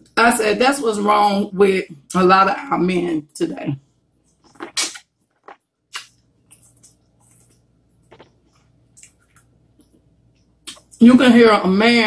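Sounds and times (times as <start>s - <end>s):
chewing smacks and clicks: 4.5s - 11.0s.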